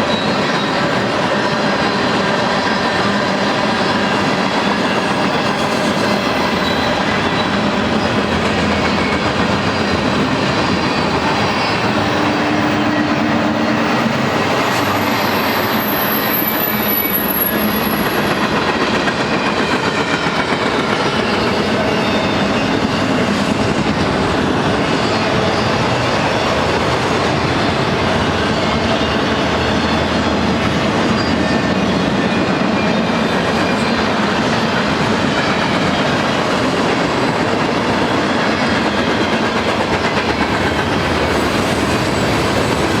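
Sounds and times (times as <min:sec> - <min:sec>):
high wheel squeal: 0:00.0 - 0:18.7, 0:28.2 - 0:34.6
train wheels clattering on rails: 0:00.0 - 0:43.0.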